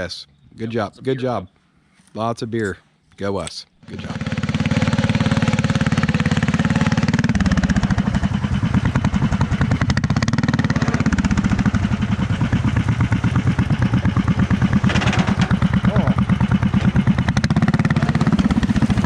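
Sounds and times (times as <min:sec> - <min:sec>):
small tractor engine running: 0:03.8 - 0:19.0.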